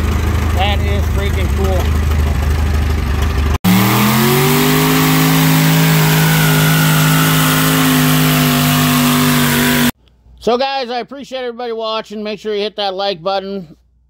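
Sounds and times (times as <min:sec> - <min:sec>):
engine running at low speed: 0:00.0 - 0:10.0
engine revving high: 0:03.6 - 0:10.0.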